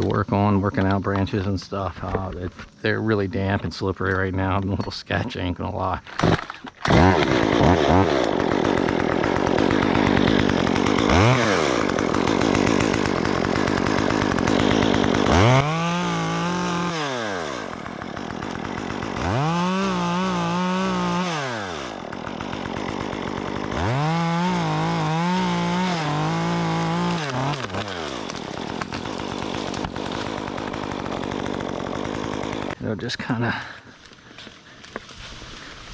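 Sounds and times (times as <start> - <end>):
chainsaw running and revving: 6.2 - 32.8.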